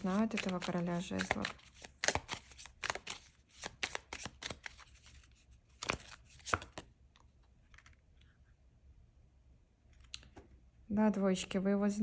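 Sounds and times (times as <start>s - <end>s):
cards being shuffled: 0.0s - 6.9s.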